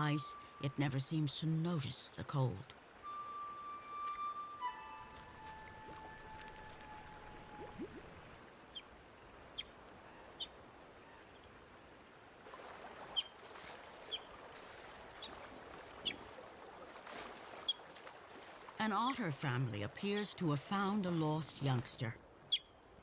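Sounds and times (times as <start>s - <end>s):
river water rushing: 4.7s - 9.1s.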